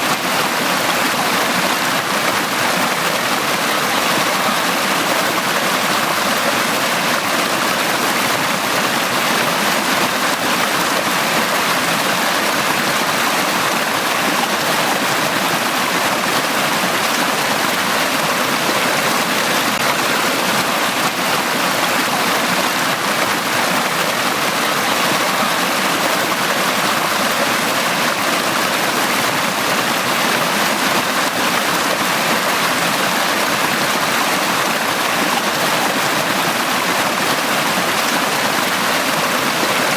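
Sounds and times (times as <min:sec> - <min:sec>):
brook rushing over rocks: 0:00.0 - 0:39.9.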